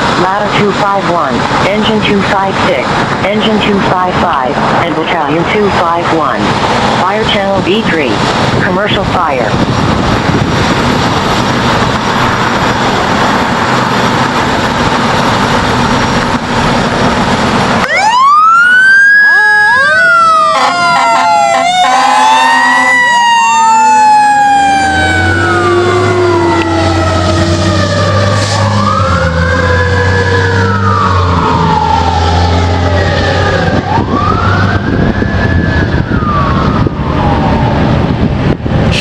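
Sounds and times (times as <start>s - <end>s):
fire engine sirens wailing: 0.0s - 39.0s.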